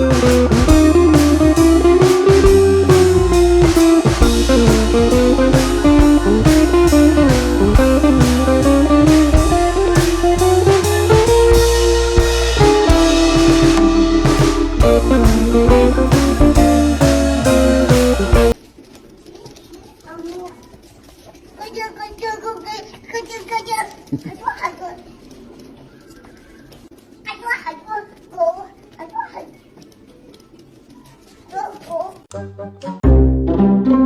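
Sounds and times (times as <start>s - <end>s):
blues guitar: 0.0s - 18.6s
drum kit: 0.0s - 18.6s.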